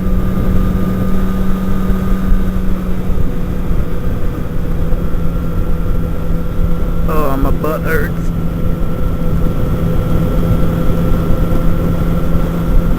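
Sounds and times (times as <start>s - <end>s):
wind rumble on microphone: 0.0s - 7.1s
motorcycle engine drone: 0.0s - 12.9s.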